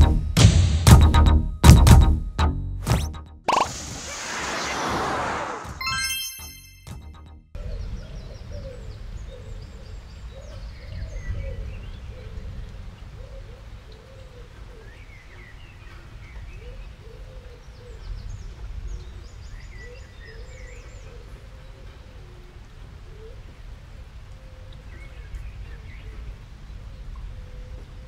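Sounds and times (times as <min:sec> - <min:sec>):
birds chirping and twittering: 0:07.6 - 0:12.5, 0:13.8 - 0:23.4.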